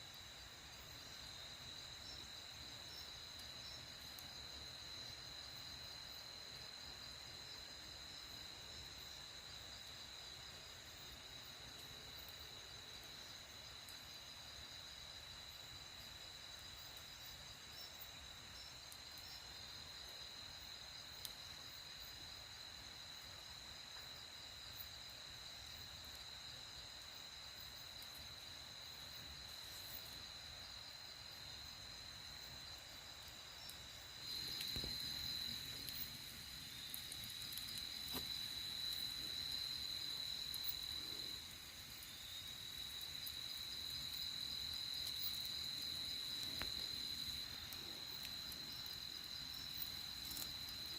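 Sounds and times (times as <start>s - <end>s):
crickets trilling: 0.0s - 50.9s.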